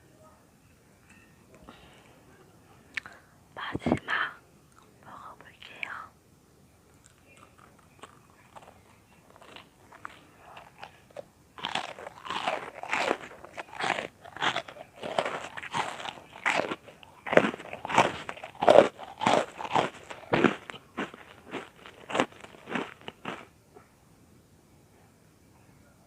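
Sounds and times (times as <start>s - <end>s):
crunching and chewing: 6.9s - 23.5s.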